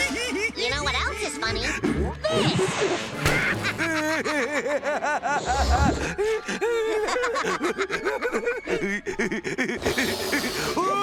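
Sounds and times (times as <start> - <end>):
cartoon character laughing: 2.2 - 5.8.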